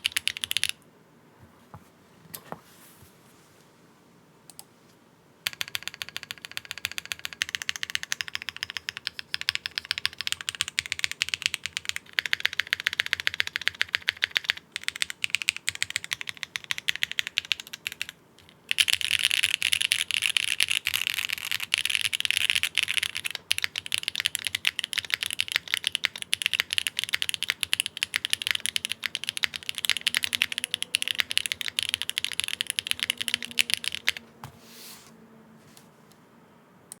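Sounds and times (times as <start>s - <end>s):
fast mechanical keyboard typing: 0.0s - 0.8s, 5.5s - 34.2s.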